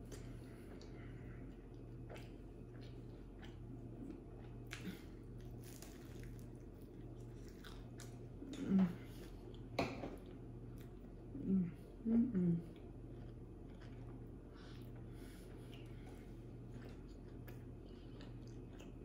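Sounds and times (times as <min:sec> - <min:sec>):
wet chewing and mouth clicks: 0:00.1 - 0:08.6, 0:12.7 - 0:19.0.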